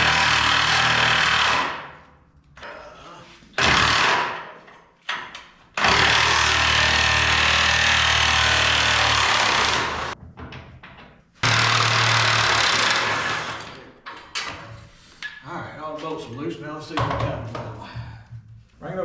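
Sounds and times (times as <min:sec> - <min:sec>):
impact wrench hammering: 0:03.6 - 0:13.8.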